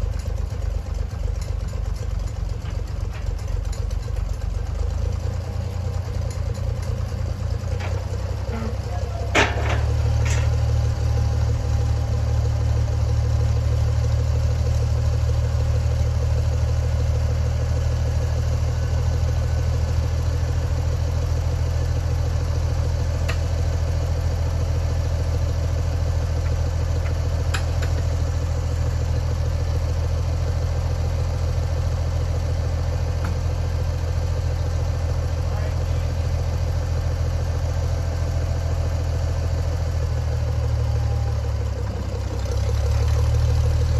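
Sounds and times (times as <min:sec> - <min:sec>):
tractor engine idling: 0:00.0 - 0:43.9.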